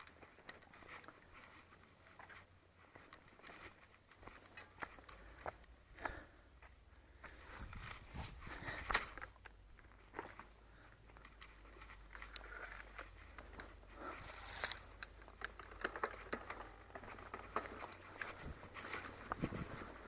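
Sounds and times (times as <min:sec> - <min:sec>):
bicycle tyres crackling over twigs: 0:09.9 - 0:20.0.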